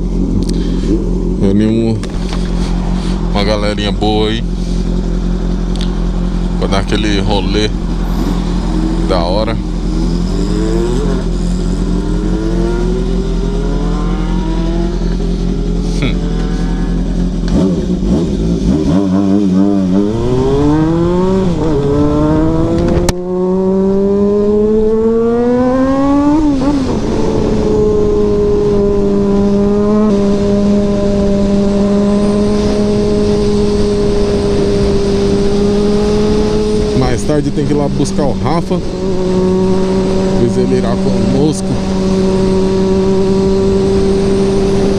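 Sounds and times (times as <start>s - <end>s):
motorcycle engine accelerating: 0.0s - 44.9s.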